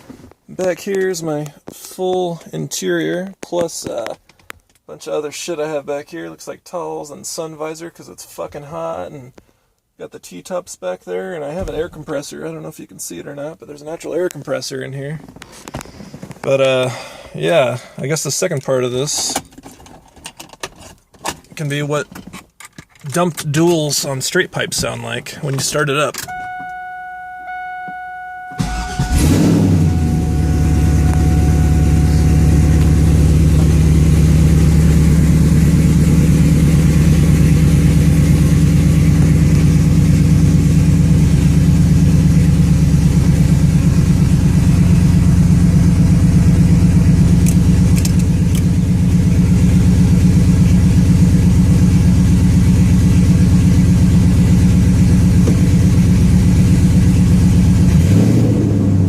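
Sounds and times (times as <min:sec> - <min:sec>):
car engine loud idle: 0:28.6 - 0:59.0.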